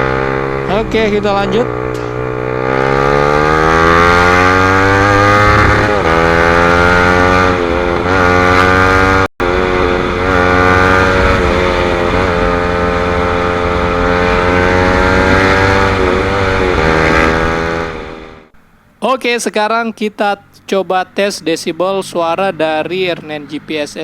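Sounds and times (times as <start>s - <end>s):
motorcycle engine revving: 0.0s - 18.6s.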